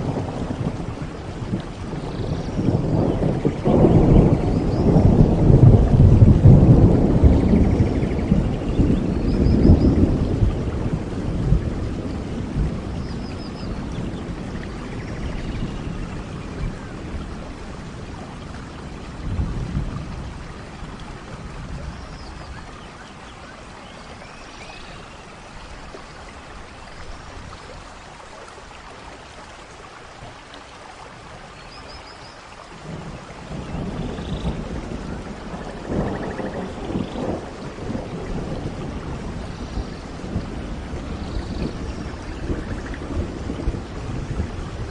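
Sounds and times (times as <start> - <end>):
rolling thunder: 0.0 - 22.7, 32.7 - 44.9
steady rain: 0.0 - 44.9.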